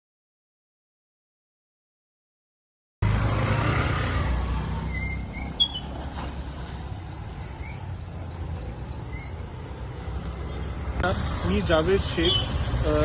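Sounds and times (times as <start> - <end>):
low traffic rumble: 3.0 - 13.0
small bird chirping: 4.9 - 9.6.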